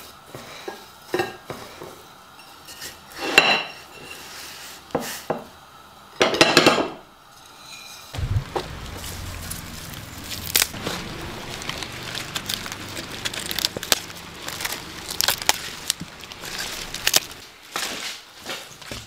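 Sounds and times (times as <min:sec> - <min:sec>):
sharp clicks and crackles: 0:08.2 - 0:17.4
low steady hum: 0:08.2 - 0:17.5.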